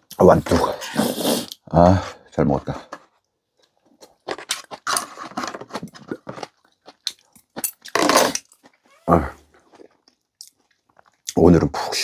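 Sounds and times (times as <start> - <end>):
dishes and utensils clattering: 7.6 - 8.6.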